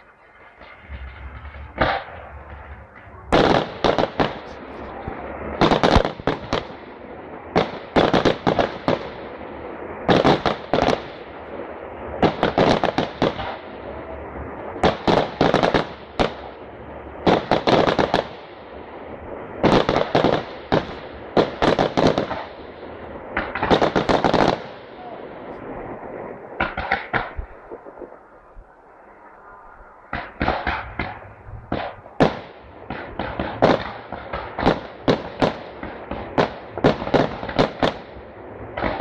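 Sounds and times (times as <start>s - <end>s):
low rumble: 0.0s - 5.6s, 24.9s - 26.6s
fireworks bursts and crackling: 0.0s - 39.0s.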